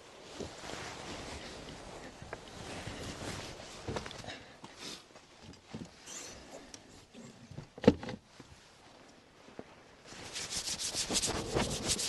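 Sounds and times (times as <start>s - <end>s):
rapid scraping: 10.2s - 12.0s.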